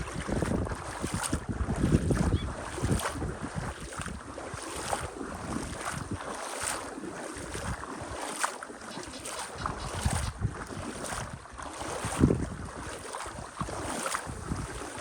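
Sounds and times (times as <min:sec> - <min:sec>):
wind buffeting the microphone: 0:00.0 - 0:06.7, 0:07.3 - 0:08.2, 0:08.9 - 0:15.0.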